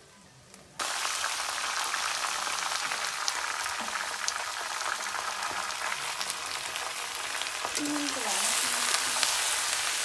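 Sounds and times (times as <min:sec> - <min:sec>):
chicken sizzling in hot oil: 0:00.8 - 0:10.0.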